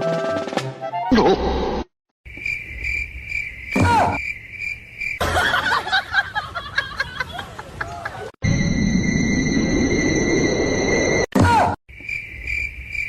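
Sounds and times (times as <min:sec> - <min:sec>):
high cricket-like trill: 0:02.3 - 0:05.8, 0:11.9 - 0:13.0.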